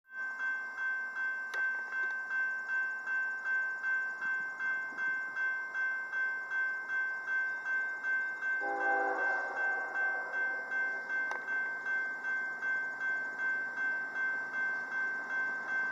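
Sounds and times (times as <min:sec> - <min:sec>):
railroad crossing bell dinging: 0:00.1 - 0:15.9
locomotive air horn: 0:08.6 - 0:10.3.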